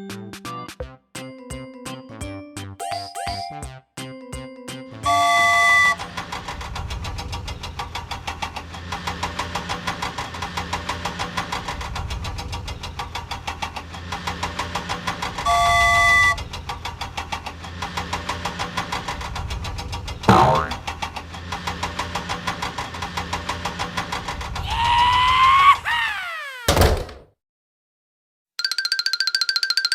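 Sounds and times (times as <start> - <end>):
horn-like tone: 5.0 - 6.1, 15.5 - 16.4
vehicle engine pulsing: 5.1 - 24.6.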